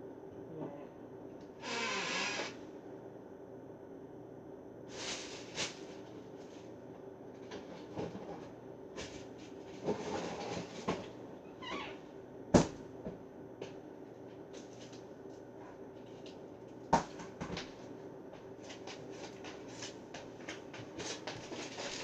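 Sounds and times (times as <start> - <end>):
faint steady hum: 0.0 - 22.0
kitchen items rustling and clicking: 18.4 - 22.0.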